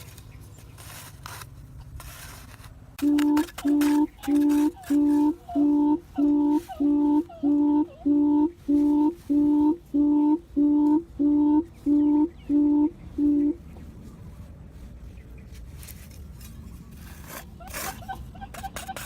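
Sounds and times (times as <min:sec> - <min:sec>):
recorded quail call hooting: 0:03.0 - 0:13.6.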